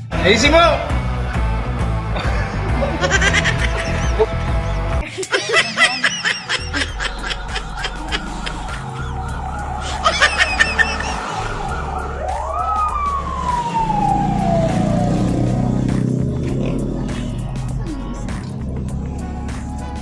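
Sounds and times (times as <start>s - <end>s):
low bass background track: 0.0s - 5.9s, 6.5s - 20.0s
sliding siren-like tone: 6.5s - 19.5s.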